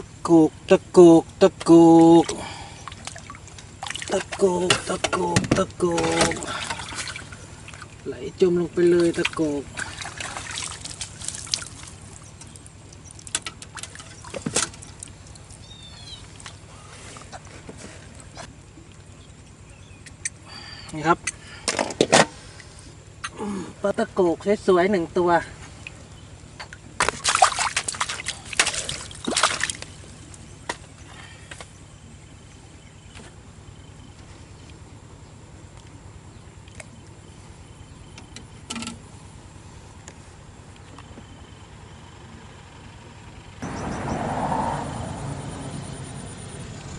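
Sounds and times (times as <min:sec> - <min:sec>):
water splashing: 0:01.9 - 0:17.0, 0:25.6 - 0:30.6.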